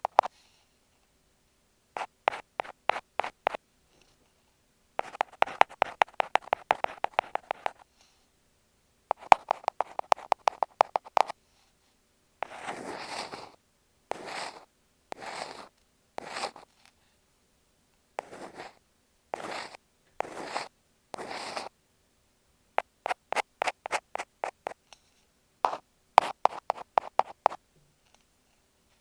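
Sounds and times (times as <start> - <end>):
ear pick scratching microphone: 5.0 - 7.8, 9.1 - 11.3, 14.1 - 16.6, 18.2 - 18.8, 19.4 - 21.7, 22.8 - 24.8, 25.7 - 27.6.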